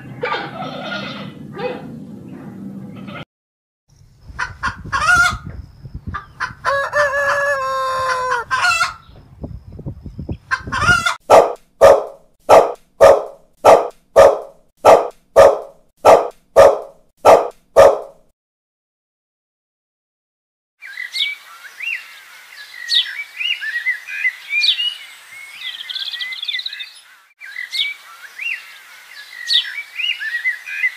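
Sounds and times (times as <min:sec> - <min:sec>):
animal cries: 0:00.2 - 0:01.9, 0:06.7 - 0:09.0
dog barking: 0:11.3 - 0:18.3.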